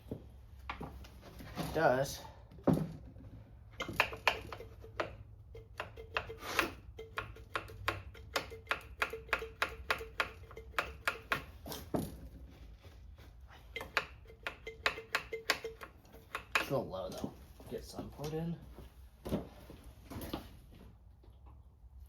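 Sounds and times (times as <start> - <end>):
sharp metallic clicks and taps: 3.8 - 11.6, 13.8 - 16.8.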